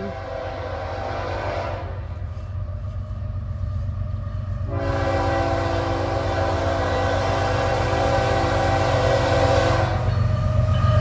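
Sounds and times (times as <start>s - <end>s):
locomotive air horn: 0.0s - 2.1s, 4.6s - 11.0s
locomotive engine rumble: 0.0s - 11.0s.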